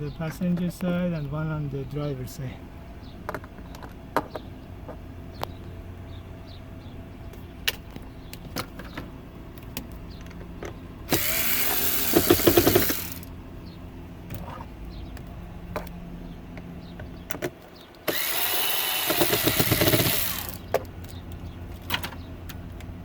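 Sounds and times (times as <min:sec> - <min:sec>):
power screwdriver whirring: 0:11.1 - 0:13.3, 0:18.0 - 0:20.7.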